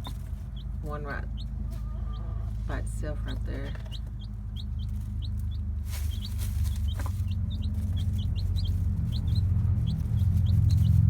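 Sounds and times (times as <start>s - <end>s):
chicks peeping: 0.0s - 11.0s
steady low hum: 0.0s - 11.0s
scratchy rustle: 5.8s - 11.0s.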